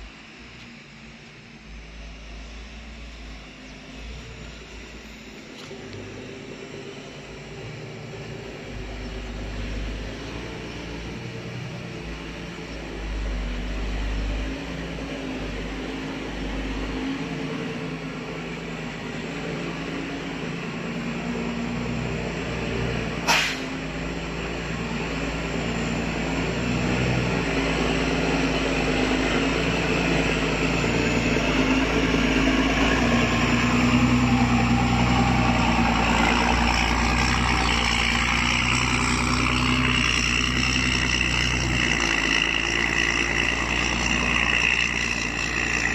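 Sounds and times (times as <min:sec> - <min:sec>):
heavy vehicle engine running: 0:00.0 - 0:45.9
sharp click: 0:23.3 - 0:23.7.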